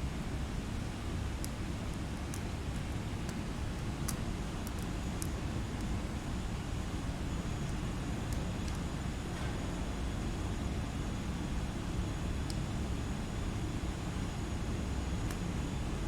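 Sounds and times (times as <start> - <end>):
white noise hiss: 0.0 - 16.0.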